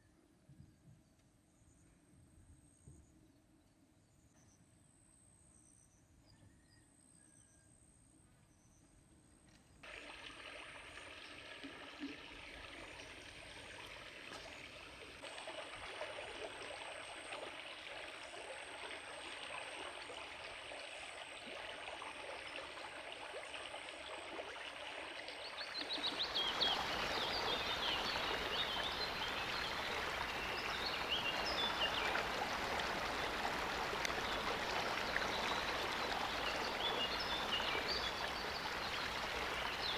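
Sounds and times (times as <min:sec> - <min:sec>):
stream water rushing: 0:25.5 - 0:39.9.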